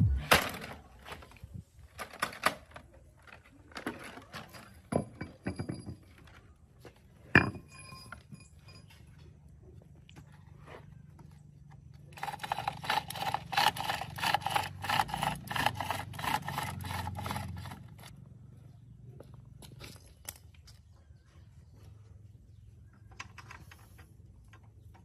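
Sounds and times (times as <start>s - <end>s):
metallic knock with ring: 7.4s - 8.9s
hand tool scraping strokes: 12.2s - 18.1s.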